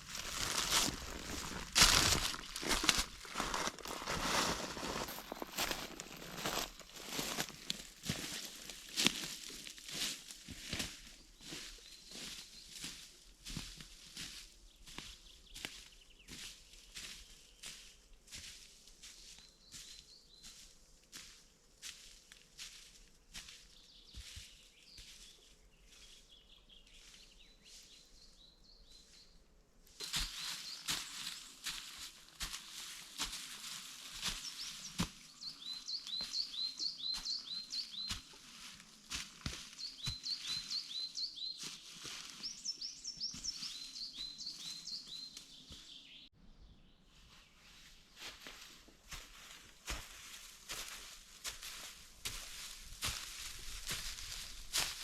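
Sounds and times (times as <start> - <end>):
songbird chirping: 0.0 - 21.4, 22.7 - 55.0
small bird calling: 34.3 - 38.4, 39.7 - 46.3.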